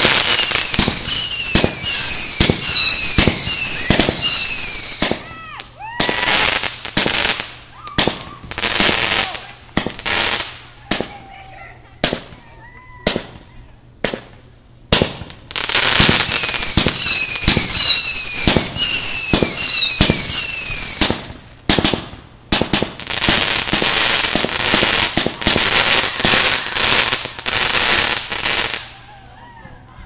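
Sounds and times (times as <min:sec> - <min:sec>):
firework whistles: 0:00.0 - 0:09.5, 0:15.7 - 0:21.8
firework bangs: 0:00.0 - 0:11.4, 0:12.0 - 0:29.0
fireworks crackling: 0:00.0 - 0:29.2.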